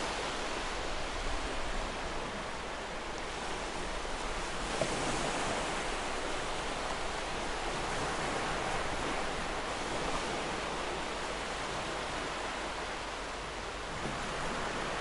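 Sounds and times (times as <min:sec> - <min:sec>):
sea waves washing ashore: 0:00.0 - 0:15.0.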